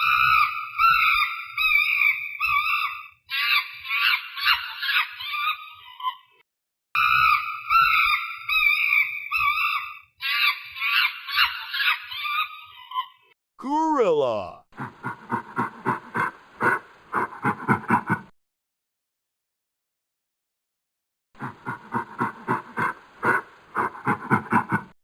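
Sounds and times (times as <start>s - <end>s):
chimpanzee calls: 7.0s - 18.3s.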